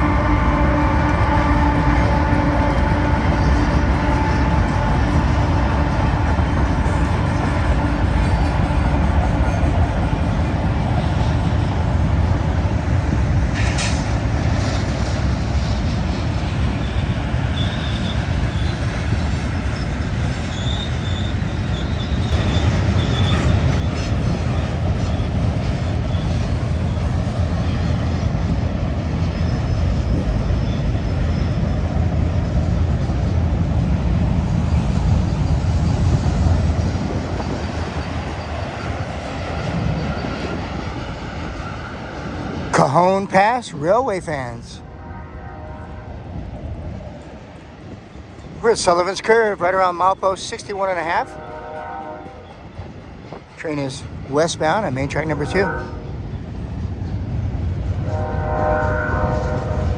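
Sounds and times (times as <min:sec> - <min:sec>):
freight train rumbling on rails: 0:00.0 - 0:59.9
high wheel squeal: 0:16.8 - 0:25.4, 0:29.2 - 0:32.7, 0:37.1 - 0:42.3.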